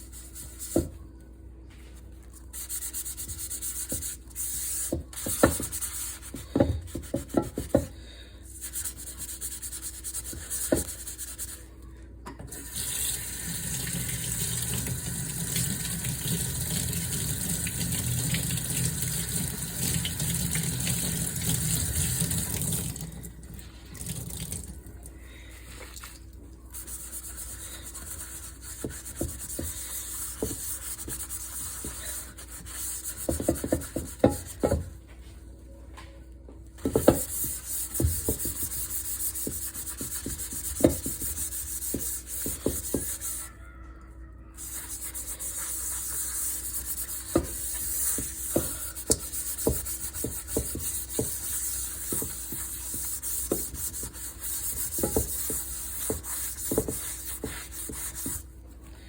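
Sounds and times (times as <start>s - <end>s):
pan being scrubbed: 26.7s - 34.8s, 36.9s - 43.5s, 44.6s - 58.5s.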